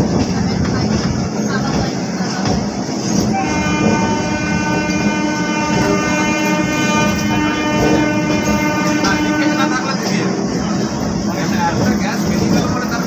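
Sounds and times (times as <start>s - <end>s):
train running over tracks: 0.0s - 13.0s
train horn: 3.3s - 10.2s.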